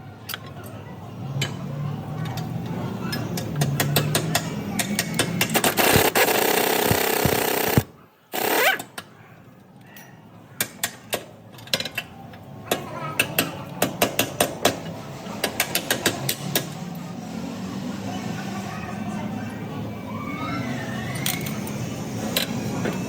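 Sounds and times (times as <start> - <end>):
sharp mechanical knocks and clicks: 3.1 - 9.1, 10.6 - 12.1, 12.7 - 16.8.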